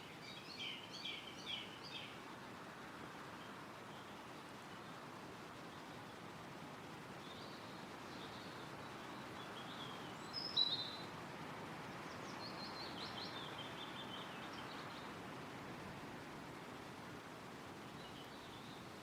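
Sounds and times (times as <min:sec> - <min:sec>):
birdsong: 0:00.0 - 0:02.3, 0:07.2 - 0:11.1, 0:11.9 - 0:15.2, 0:17.7 - 0:19.0
wind rustling through trees: 0:00.0 - 0:19.0.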